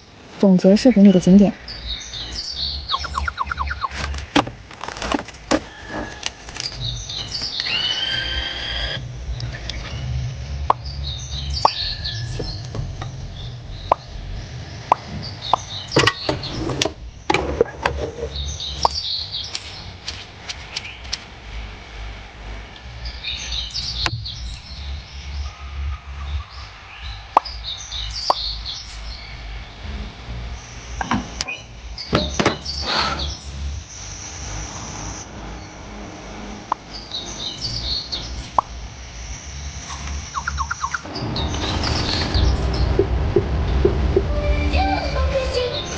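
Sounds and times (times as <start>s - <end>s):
small birds chirping: 0.0s - 17.3s, 18.0s - 21.2s, 23.0s - 29.9s, 30.6s - 35.9s, 36.7s - 45.9s
low background rumble: 0.0s - 45.9s
low rumble of rain: 41.0s - 45.9s.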